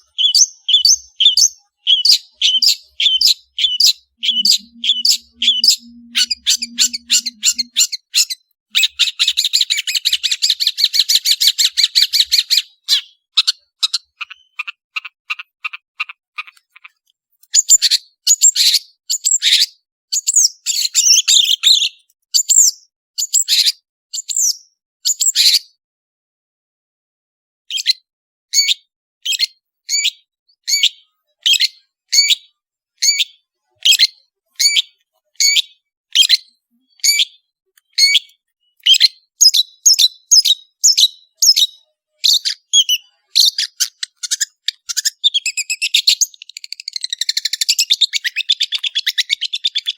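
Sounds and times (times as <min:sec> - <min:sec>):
shrike harsh chattering: 0:04.2 - 0:07.8.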